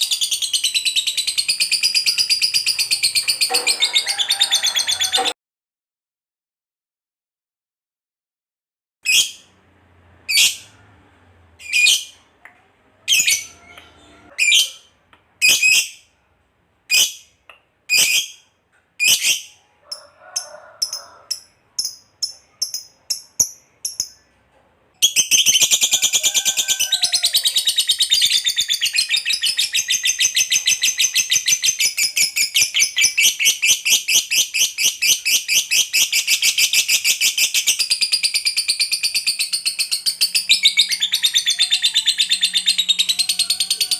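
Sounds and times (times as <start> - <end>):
lovebird chirping and trilling: 0.0 - 5.3, 9.1 - 9.5, 10.3 - 10.8, 11.6 - 12.2, 13.0 - 16.1, 16.9 - 17.3, 17.9 - 20.0, 20.8 - 24.3, 25.0 - 43.9.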